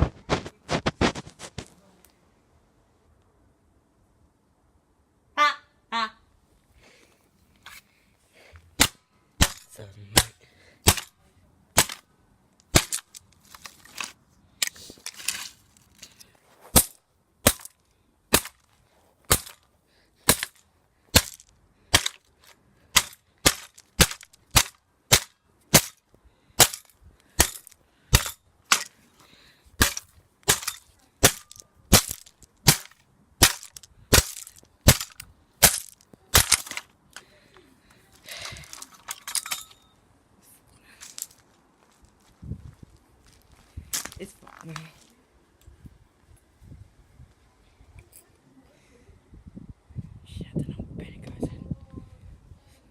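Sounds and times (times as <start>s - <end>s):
pole whacking cardboard box: 0.0s - 1.7s.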